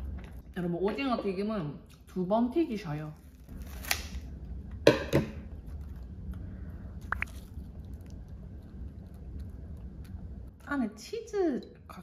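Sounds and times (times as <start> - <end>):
chewing: 7.0 - 10.5.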